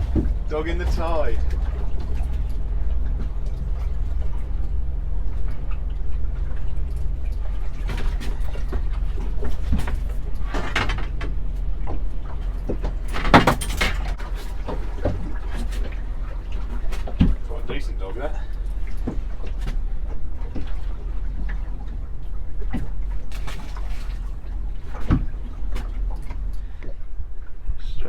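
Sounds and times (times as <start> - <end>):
steady low drone: 0.0 - 13.1
splashing and handling noise: 0.0 - 27.1.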